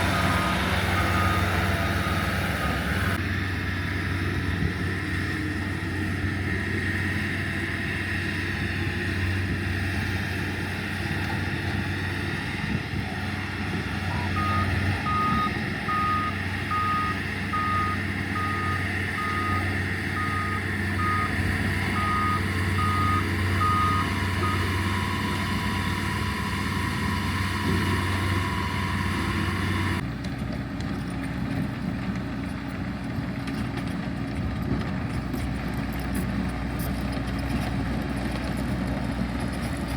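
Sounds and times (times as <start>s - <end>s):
reversing alarm beeping: 0.0s - 3.2s, 14.1s - 30.0s
diesel machine engine running: 0.0s - 39.9s.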